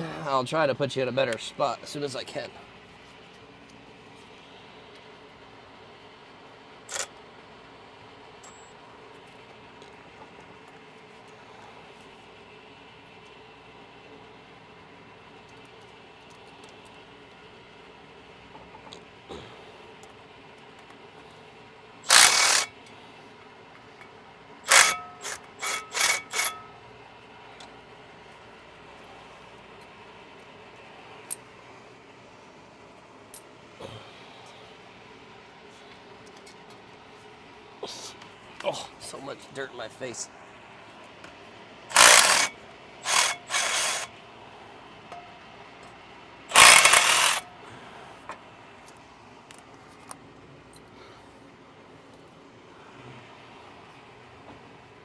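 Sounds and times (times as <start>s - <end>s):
ratchet wrench ratcheting: 6.9s - 7.1s, 22.0s - 22.8s, 24.6s - 26.8s, 41.9s - 44.1s, 46.5s - 47.5s.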